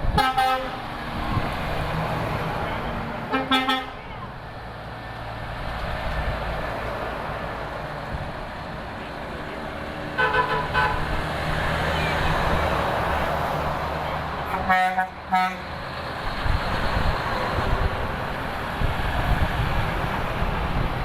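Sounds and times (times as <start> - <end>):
truck horn blasts: 0.0 - 0.9, 3.3 - 4.0, 10.2 - 11.0, 14.5 - 15.7
trucks passing: 0.0 - 21.0.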